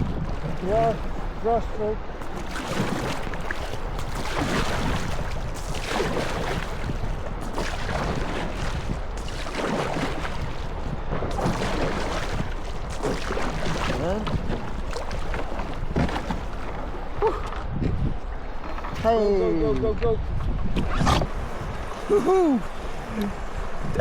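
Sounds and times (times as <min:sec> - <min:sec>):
rushing whitewater: 0:00.0 - 0:17.2
paddle strokes splashing: 0:00.0 - 0:23.8.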